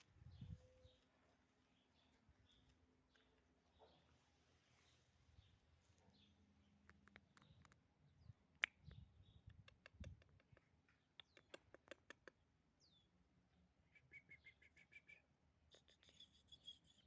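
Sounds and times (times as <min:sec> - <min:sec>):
faint bird chirps: 0:00.0 - 0:01.1, 0:13.8 - 0:17.0
bird trill: 0:13.9 - 0:15.2, 0:15.8 - 0:17.0.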